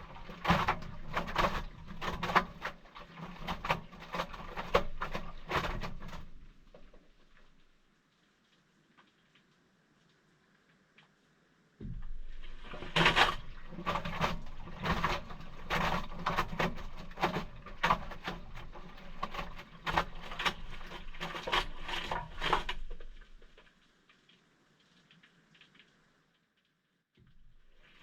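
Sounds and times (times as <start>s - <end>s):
water and towels sloshing: 0.0s - 7.7s, 12.0s - 23.7s.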